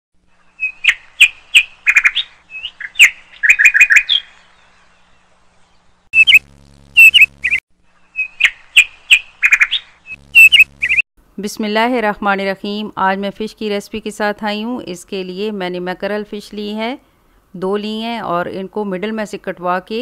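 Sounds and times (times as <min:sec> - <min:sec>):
birds chirping: 0:00.3 - 0:11.0
low steady hum: 0:05.2 - 0:08.1.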